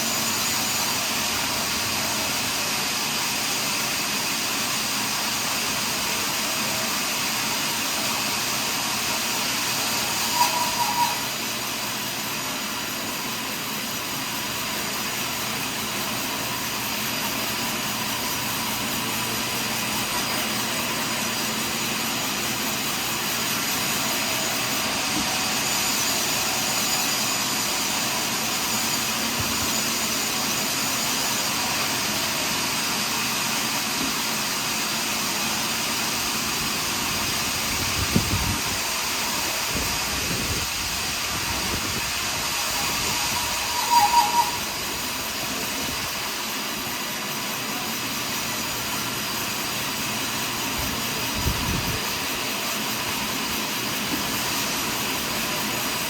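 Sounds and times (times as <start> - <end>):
sawmill cutting log: 0.0 - 56.0
brief high squeak: 9.9 - 11.5, 42.6 - 45.0.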